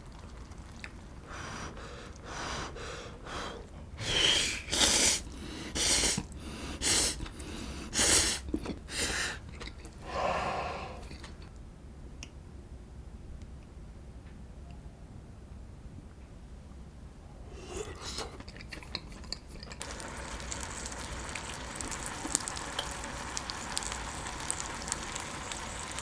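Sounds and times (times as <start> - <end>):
breathy mouth noises while eating: 1.2 - 11.5, 17.5 - 19.8.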